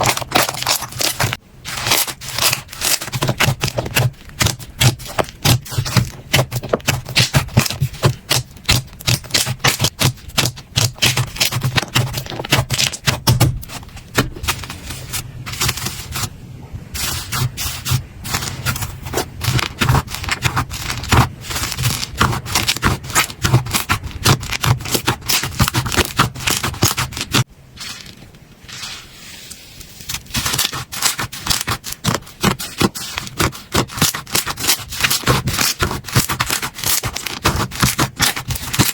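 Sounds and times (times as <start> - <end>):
slime crackling and popping: 0.0 - 13.5, 30.1 - 38.9.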